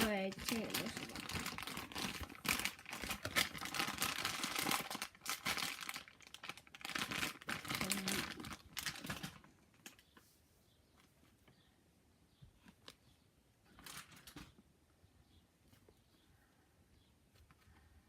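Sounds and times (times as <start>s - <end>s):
plastic wrapping crinkling: 0.0s - 10.2s, 13.7s - 14.6s.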